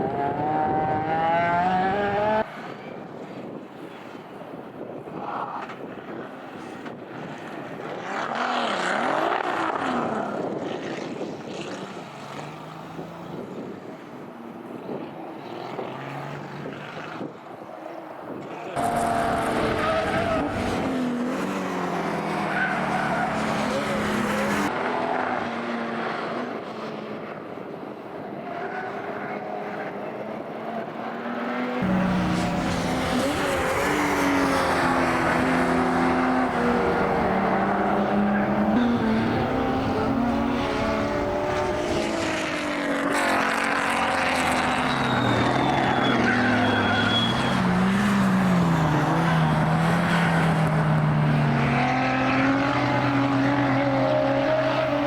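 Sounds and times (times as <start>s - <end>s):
racing car engines revving: 0.0s - 2.7s, 6.6s - 27.5s, 28.2s - 55.0s
tyre squeal: 44.4s - 50.8s.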